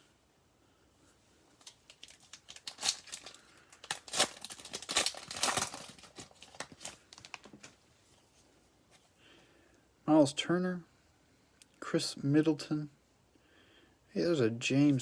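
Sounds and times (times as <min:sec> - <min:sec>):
foil wrapper tearing and crinkling: 0:01.6 - 0:07.8.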